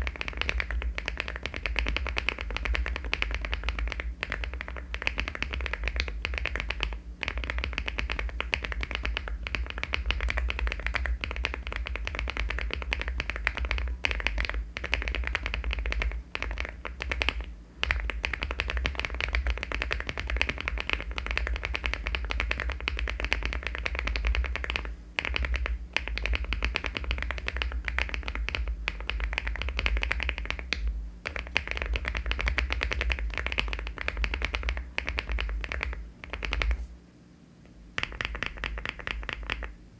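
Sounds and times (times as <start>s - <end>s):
mechanical keyboard typing: 0.0s - 36.9s, 38.0s - 39.7s.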